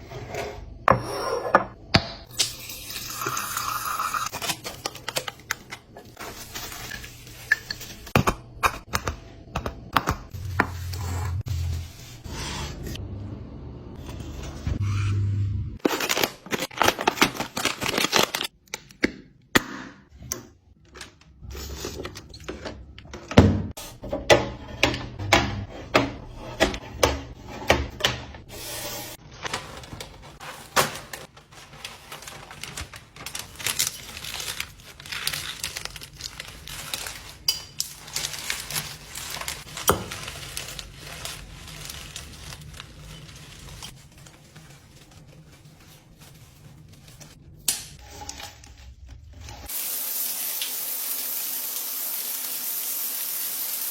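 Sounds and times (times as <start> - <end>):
rubbing and crinkling: 4.3 - 8.2, 28.4 - 49.8.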